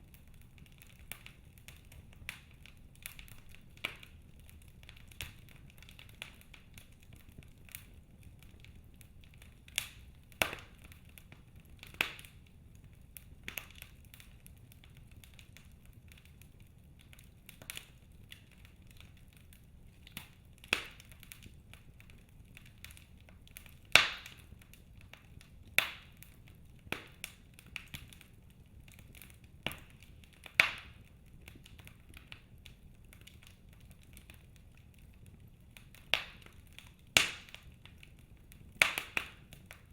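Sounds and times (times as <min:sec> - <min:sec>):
sharp fire pops: 0:00.0 - 0:16.4, 0:20.0 - 0:34.4, 0:35.8 - 0:39.9
fireplace fire crackling: 0:00.0 - 0:39.9.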